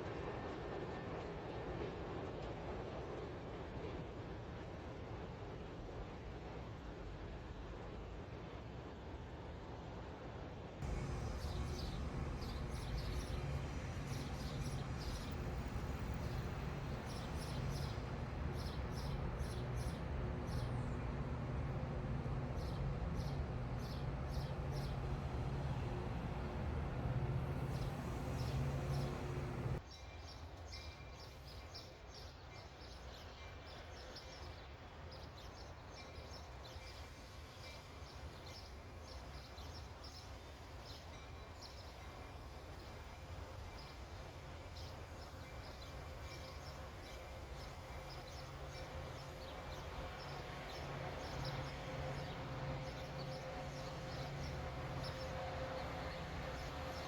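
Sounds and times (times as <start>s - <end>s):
distant city noise: 10.8s - 29.8s, 46.0s - 57.0s
low mechanical hum: 10.8s - 29.8s, 44.9s - 57.0s.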